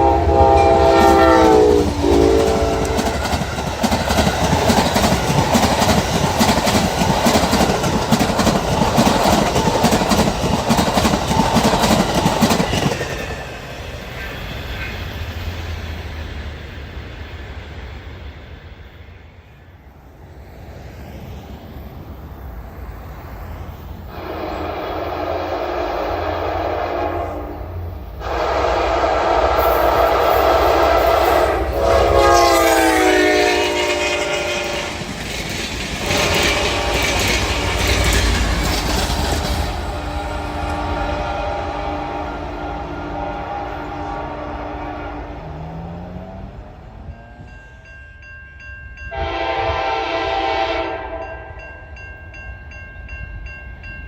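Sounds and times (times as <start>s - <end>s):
locomotive horn blasts: 0.0s - 3.2s, 24.1s - 35.1s, 36.1s - 38.0s, 40.0s - 45.7s, 49.1s - 51.6s
train rumbling and clattering by: 0.0s - 54.0s.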